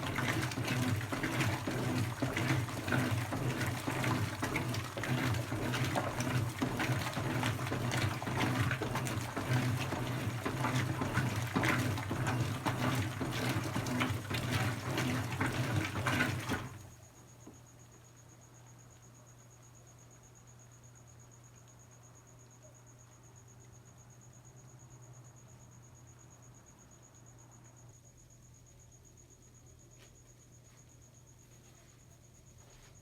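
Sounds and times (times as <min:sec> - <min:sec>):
washing machine running: 0:00.0 - 0:17.0.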